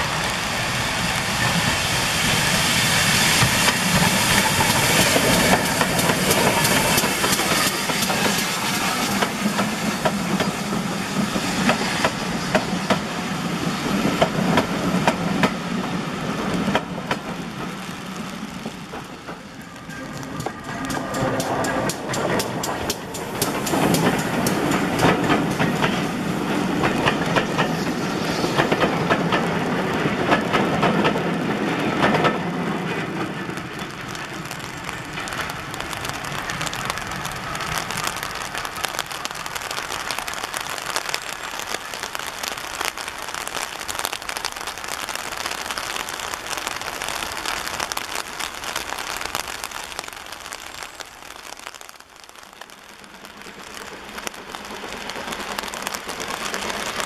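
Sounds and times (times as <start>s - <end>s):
train wheels clicking over rail joints: 3.0s - 34.3s.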